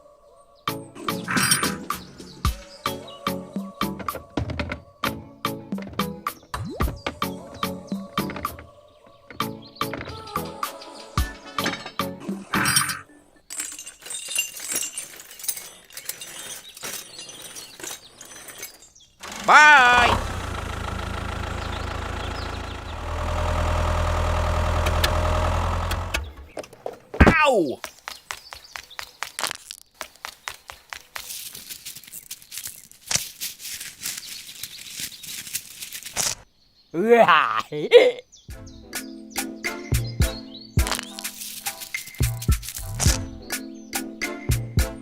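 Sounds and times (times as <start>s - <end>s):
small hard objects clinking: 12.6s - 19.1s, 29.0s - 36.4s, 40.8s - 43.2s.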